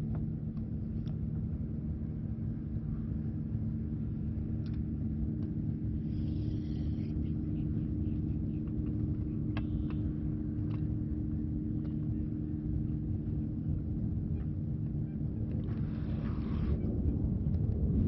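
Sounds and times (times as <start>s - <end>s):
motor running with low hum: 0.0s - 18.0s
faint clicks: 8.5s - 11.0s.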